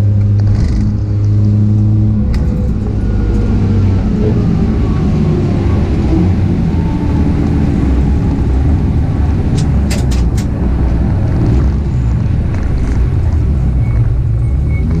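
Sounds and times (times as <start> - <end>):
sharp clicks: 9.5 - 10.6.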